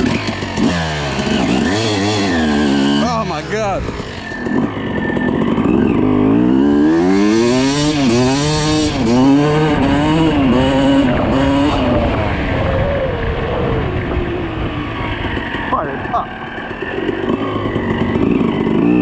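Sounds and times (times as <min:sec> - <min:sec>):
two-stroke engine revving: 0:00.0 - 0:19.0.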